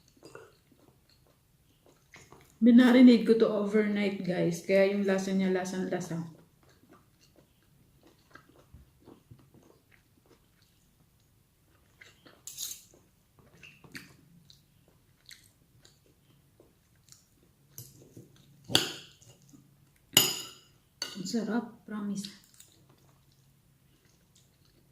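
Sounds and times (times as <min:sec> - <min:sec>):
person chewing food: 0:00.0 - 0:02.6, 0:06.3 - 0:20.2, 0:22.2 - 0:24.9.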